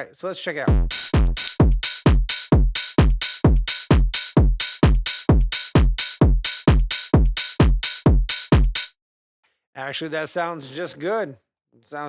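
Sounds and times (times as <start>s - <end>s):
distorted kick drum: 0.7s - 8.9s.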